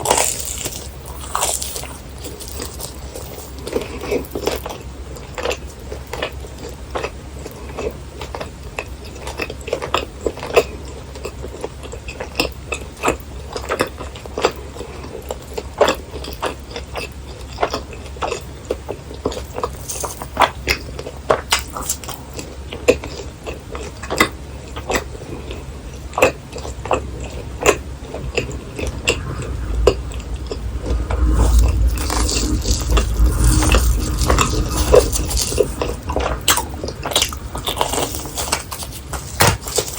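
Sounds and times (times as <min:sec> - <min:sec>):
chewing crunchy snacks: 0:00.0 - 0:28.5, 0:31.5 - 0:39.9
low rumble: 0:27.0 - 0:39.4.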